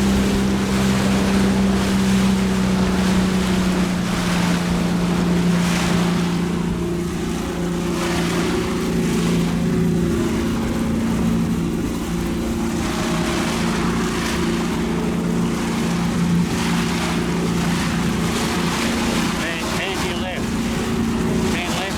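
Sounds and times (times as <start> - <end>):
motorboat engine humming: 0.0 - 21.9
water noise: 0.0 - 21.9
wind: 0.0 - 21.9.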